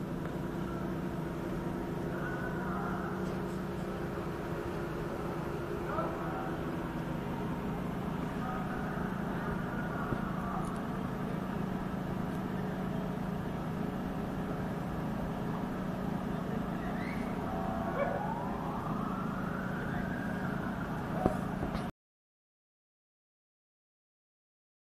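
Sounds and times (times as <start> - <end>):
street traffic engine hum: 0.0 - 21.9
siren wailing: 4.8 - 10.7, 16.7 - 21.5.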